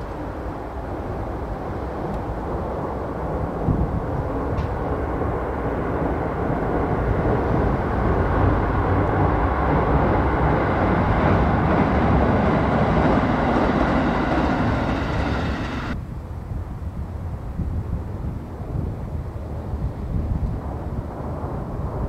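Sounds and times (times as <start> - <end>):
train running: 0.0 - 16.0.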